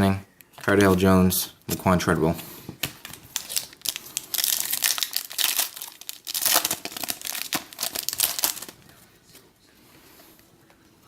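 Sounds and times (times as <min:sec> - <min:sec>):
wrapper tearing and crinkling: 0:02.8 - 0:08.8.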